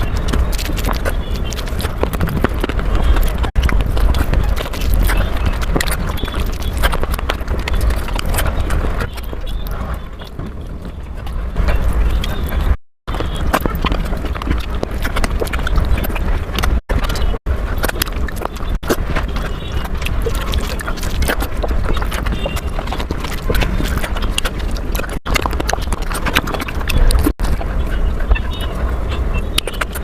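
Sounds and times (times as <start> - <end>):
chewing and mouth smacking: 0.0 - 30.0
low rumble: 0.0 - 30.0.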